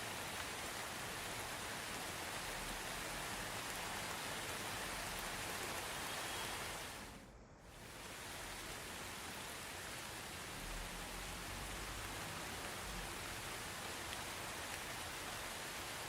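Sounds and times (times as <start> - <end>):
soft rain falling: 0.0 - 16.0.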